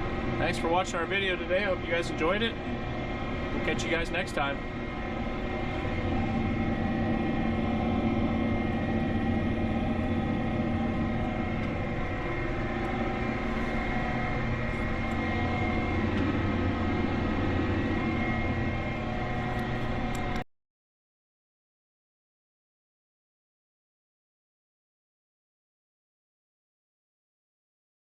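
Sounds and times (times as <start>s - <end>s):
tractor diesel engine droning: 0.0s - 20.4s
constant whine: 0.0s - 20.5s.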